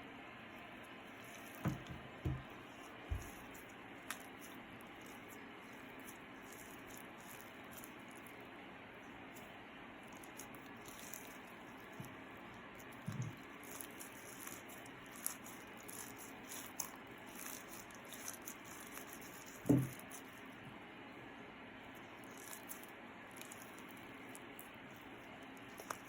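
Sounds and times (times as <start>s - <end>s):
slime squishing: 1.0s - 8.4s, 9.4s - 20.6s, 22.0s - 26.0s
soft thumps: 1.5s - 3.5s, 19.6s - 20.0s.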